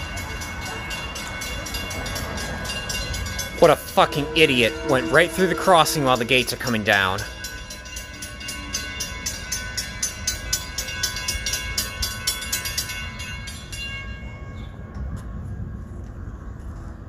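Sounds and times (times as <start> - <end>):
train rumble: 0.0 - 10.0
crossing warning bell ringing: 0.0 - 14.7.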